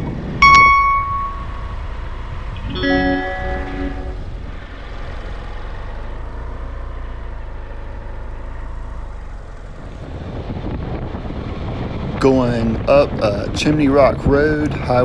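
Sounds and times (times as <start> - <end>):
vehicle engine and road rumble: 0.0 - 15.0
faint whine: 0.4 - 5.2.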